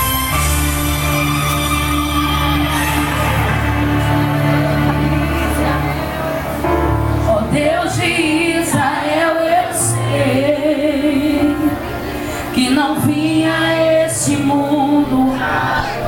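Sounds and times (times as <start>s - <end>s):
gospel instrumental chords and bass: 0.0s - 16.0s
woman singing: 7.2s - 16.0s.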